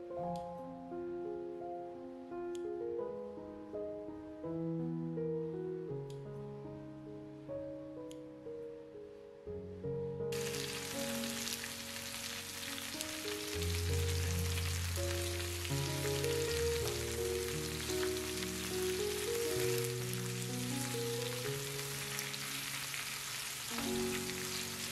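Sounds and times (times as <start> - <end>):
background music: 0.0 - 24.9
food sizzling in a pan: 10.4 - 24.9.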